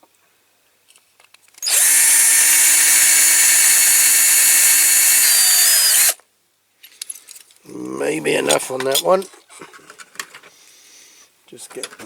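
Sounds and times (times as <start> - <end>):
electric drill whining: 1.6 - 6.2.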